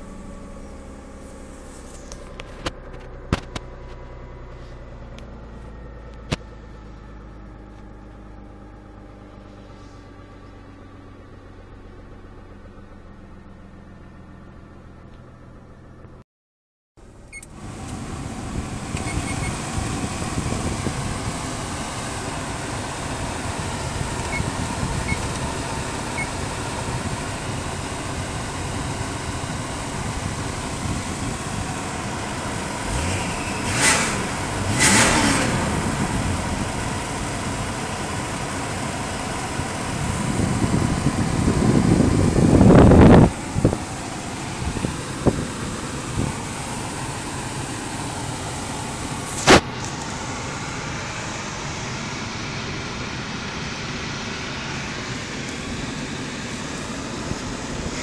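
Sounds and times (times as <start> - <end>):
car engine idling: 0.0 - 16.2, 17.0 - 58.0
ventilation fan air rushing: 17.1 - 58.0.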